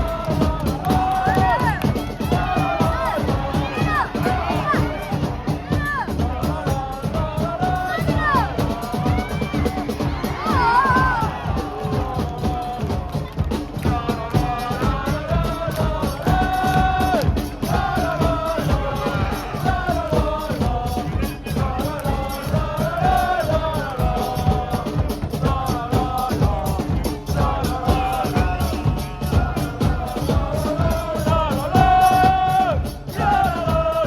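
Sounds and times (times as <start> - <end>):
crowd chanting: 0.0 - 34.0
drum beating: 0.0 - 34.0.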